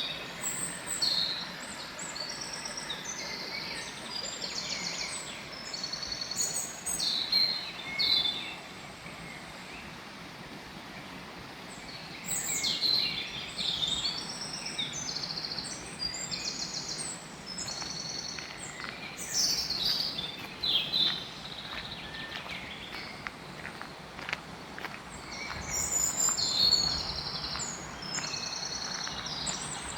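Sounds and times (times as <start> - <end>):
outdoor background noise: 0.0 - 29.9
songbirds trilling: 11.8 - 29.9.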